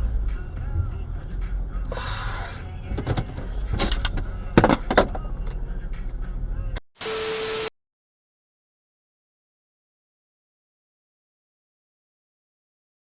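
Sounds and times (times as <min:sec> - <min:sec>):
car driving rumble: 0:00.0 - 0:06.8
hiss with steady tone: 0:07.0 - 0:07.7.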